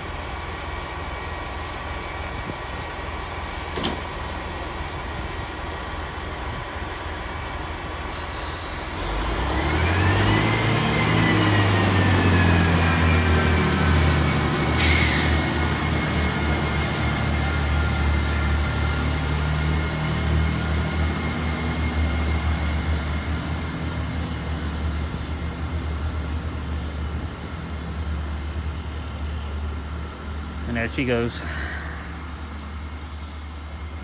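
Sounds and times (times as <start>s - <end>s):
diesel train engine: 0.0s - 34.0s
engine whine: 7.6s - 34.0s.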